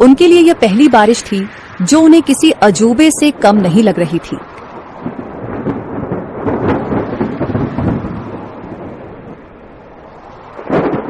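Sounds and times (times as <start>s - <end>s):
steady rain: 0.0s - 11.0s
rolling thunder: 4.6s - 11.0s.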